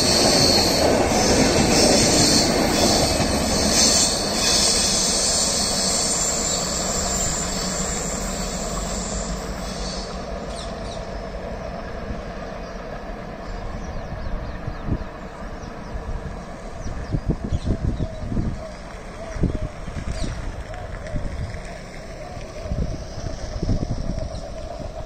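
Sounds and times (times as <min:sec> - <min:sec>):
high wheel squeal: 0:00.0 - 0:11.1.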